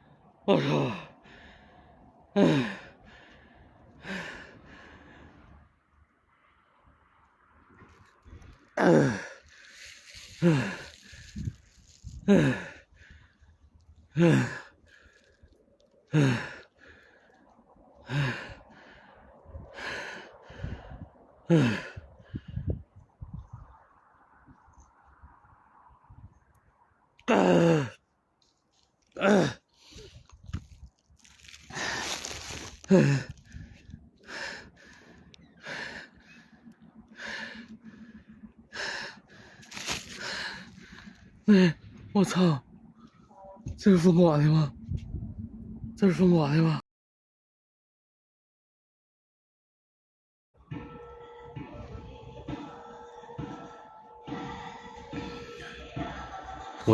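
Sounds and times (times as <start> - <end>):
man breathing hard: 0.0 - 5.7, 8.2 - 23.0, 29.2 - 42.1
person sighing or groaning: 0.5 - 1.2, 2.4 - 2.9, 8.8 - 12.8, 14.1 - 14.7, 16.1 - 16.7, 18.0 - 18.6, 21.5 - 22.0, 27.2 - 28.0, 29.2 - 30.1, 31.2 - 33.5, 41.5 - 42.6.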